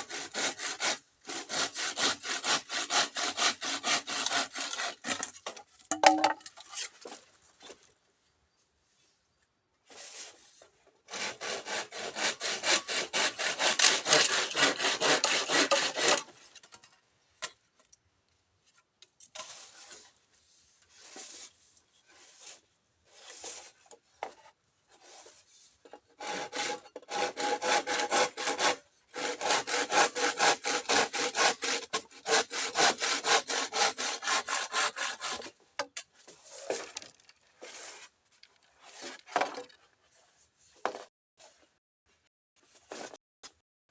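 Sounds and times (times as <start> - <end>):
hand saw cutting bamboo: 0.0 - 5.6, 11.1 - 16.4, 26.2 - 37.0.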